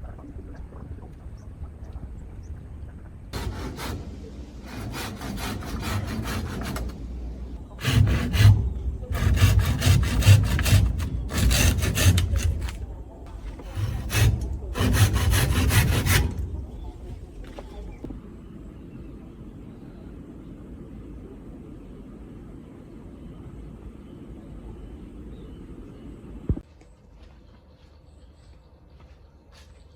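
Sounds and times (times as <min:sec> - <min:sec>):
hand saw cutting wood: 0:03.4 - 0:16.8.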